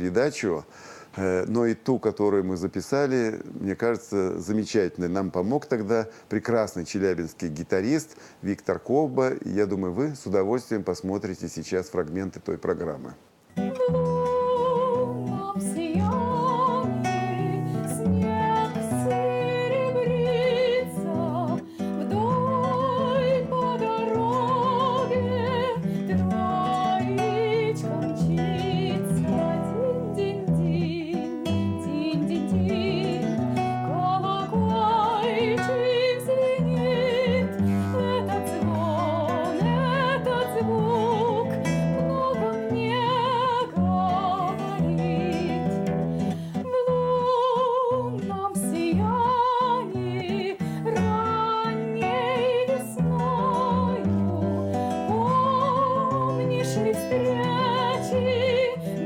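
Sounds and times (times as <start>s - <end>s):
plucked acoustic guitar: 13.5s - 59.0s
soprano singing with vibrato: 13.6s - 59.0s.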